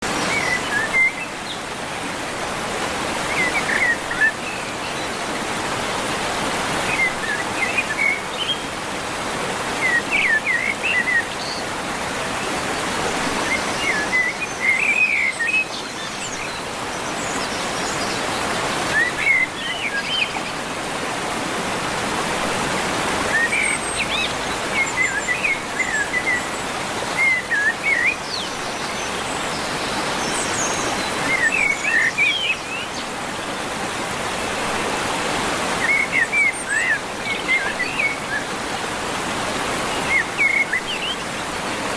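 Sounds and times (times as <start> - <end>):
small birds chirping: 23.2 - 41.9.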